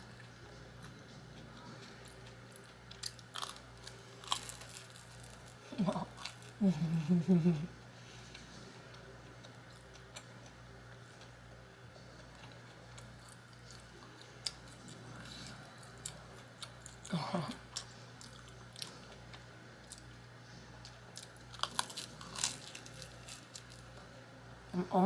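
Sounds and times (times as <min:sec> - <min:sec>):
low voiced hum: 0:00.0 - 0:25.0
person chewing food: 0:00.1 - 0:07.5, 0:12.0 - 0:20.2, 0:20.8 - 0:24.0.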